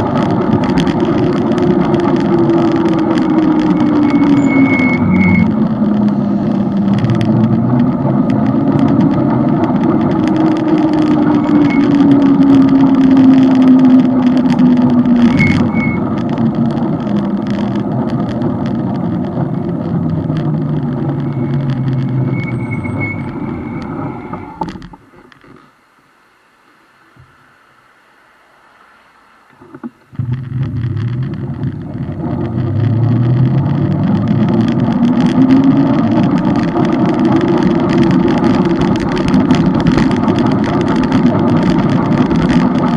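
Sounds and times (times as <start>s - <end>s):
motorcycle engine running: 0.0s - 24.3s
wind rush: 0.0s - 24.6s.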